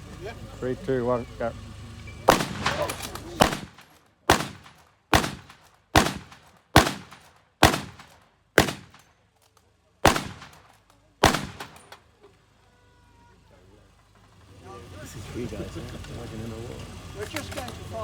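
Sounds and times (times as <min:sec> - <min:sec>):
rifle shots echoing: 0:02.3 - 0:09.1, 0:10.0 - 0:12.0.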